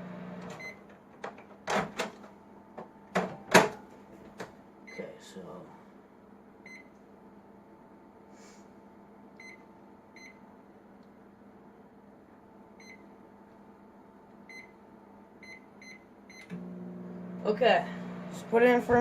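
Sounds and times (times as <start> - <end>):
microwave keypad beeping: 0.5 - 0.8, 6.7 - 6.9, 9.4 - 9.6, 12.8 - 13.1, 14.5 - 14.8, 15.4 - 16.6.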